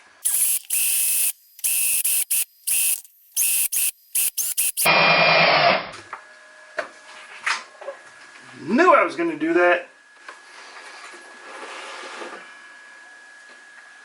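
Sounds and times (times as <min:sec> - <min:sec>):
small power tool bursts: 0:00.2 - 0:05.9.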